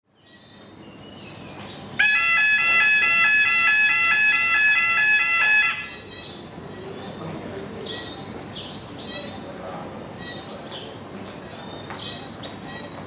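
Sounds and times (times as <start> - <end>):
electronic two-tone alarm: 2.0 - 6.0.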